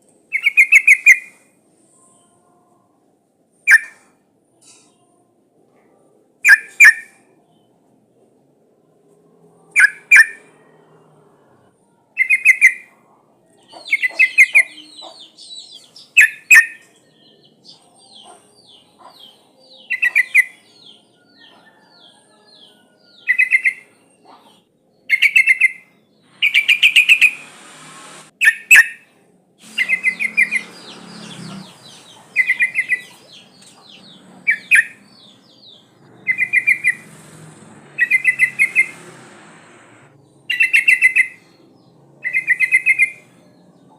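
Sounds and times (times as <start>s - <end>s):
high bird chirping: 13.6s - 21.8s, 23.2s - 29.0s, 29.6s - 43.8s.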